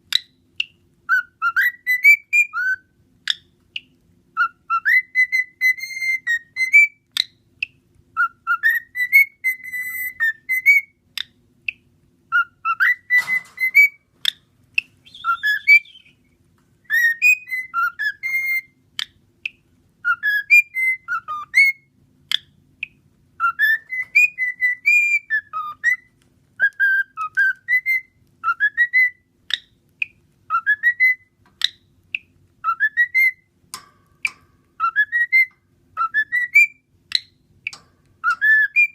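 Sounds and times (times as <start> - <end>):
cockatiel whistling: 0.1 - 16.3, 16.9 - 33.5, 34.2 - 38.9
sharp bird clicks: 3.3 - 4.0, 19.0 - 19.7, 22.3 - 27.6, 29.5 - 30.2, 31.4 - 32.8.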